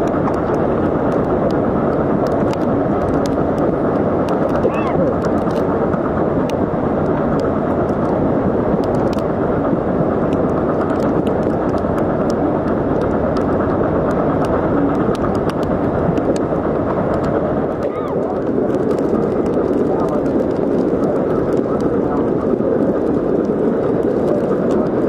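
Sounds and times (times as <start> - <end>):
train rushing at speed: 0.0 - 25.0
wind buffeting microphone: 0.0 - 25.0.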